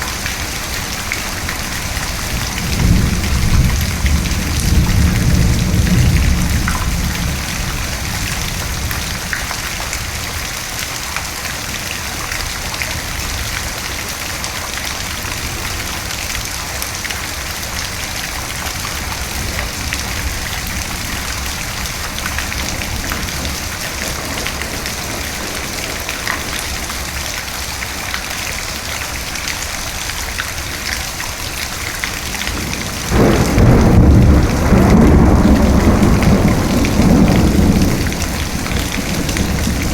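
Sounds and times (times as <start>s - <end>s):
steady rain: 0.0s - 39.9s
thunder rumbling: 0.4s - 10.4s, 17.9s - 28.0s, 32.3s - 39.9s.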